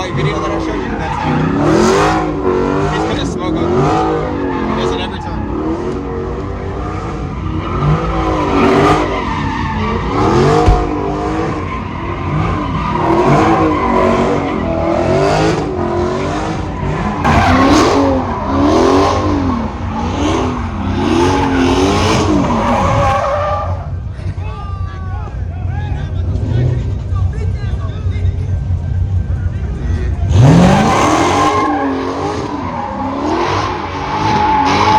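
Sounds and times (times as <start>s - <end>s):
car engine revving: 0.0s - 24.1s, 28.4s - 34.9s
tyres squealing and skidding: 0.0s - 27.0s, 28.7s - 34.9s.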